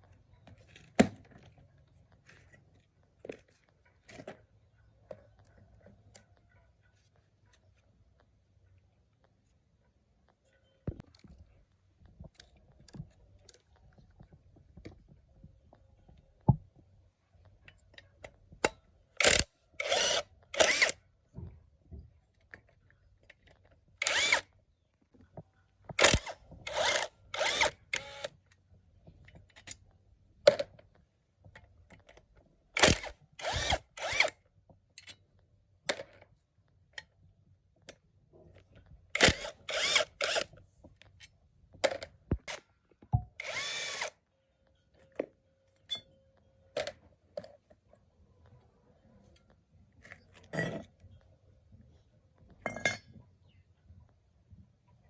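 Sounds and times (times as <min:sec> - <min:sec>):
handheld power tool bursts: 0:19.2 - 0:21.0, 0:24.0 - 0:24.5, 0:25.9 - 0:28.3, 0:32.8 - 0:34.4, 0:39.2 - 0:40.5, 0:43.4 - 0:44.2.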